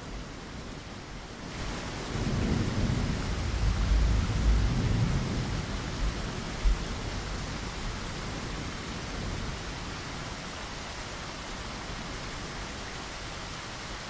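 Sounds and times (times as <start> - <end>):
steady rain hiss: 0.0 - 14.0
rolling thunder rumble: 1.7 - 9.6.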